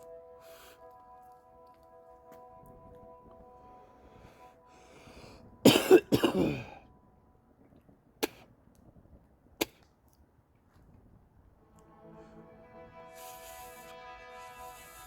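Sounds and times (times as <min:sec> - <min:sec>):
steady multi-tone hum: 0:00.0 - 0:08.7
person coughing loudly: 0:05.6 - 0:06.8.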